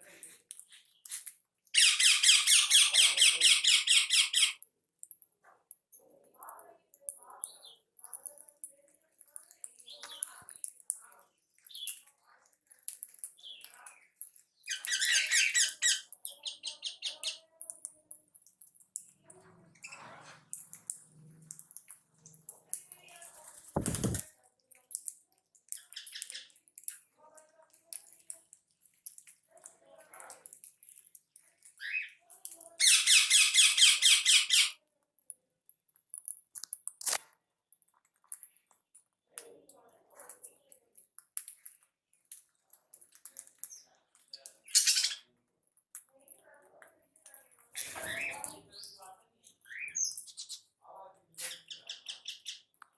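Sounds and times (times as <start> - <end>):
pet birds chirping: 0.6 - 4.7, 13.2 - 17.8, 25.7 - 26.6, 31.7 - 34.8, 43.6 - 45.3, 47.8 - 50.8, 51.4 - 52.8
shrill rapid bird calls: 1.8 - 4.6.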